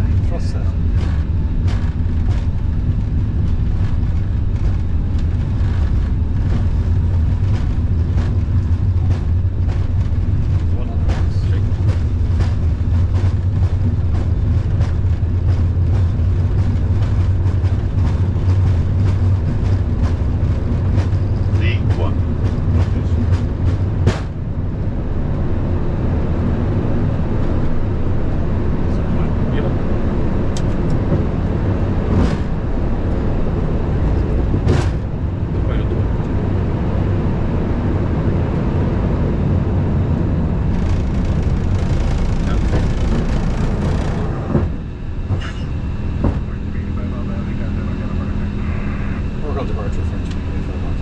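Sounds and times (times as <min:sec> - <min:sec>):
jet engines rumbling: 0:00.0 - 0:51.0
wheels knocking on runway: 0:00.1 - 0:24.4, 0:40.6 - 0:45.5
wheels on runway: 0:25.0 - 0:48.6.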